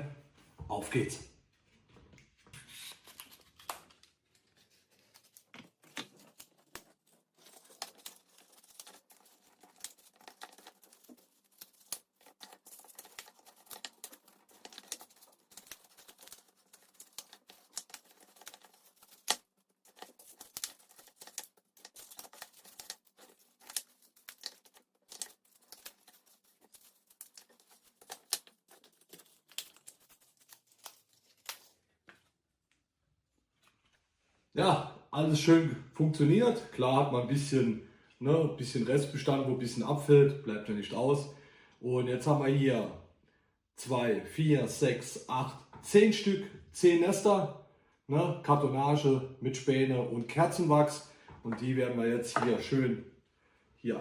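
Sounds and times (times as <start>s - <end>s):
cardboard and wax being broken by hand: 3.3s - 32.2s.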